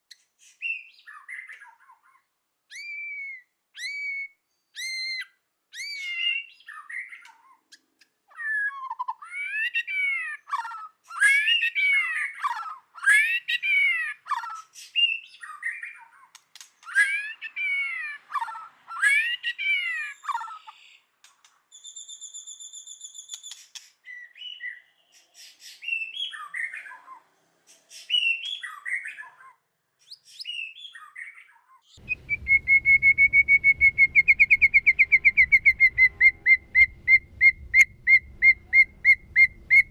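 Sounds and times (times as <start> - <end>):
bird whistling song: 0.0 - 1.8, 2.7 - 7.4, 21.7 - 27.1, 27.9 - 29.4, 30.0 - 39.9
bird fast trill: 32.0 - 39.9.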